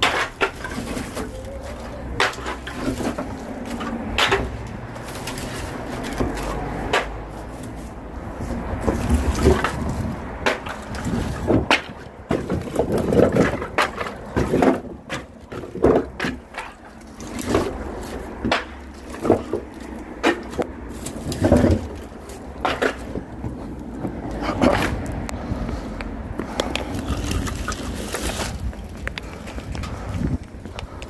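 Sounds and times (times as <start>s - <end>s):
firewood logs clacking together: 0.0s - 31.0s.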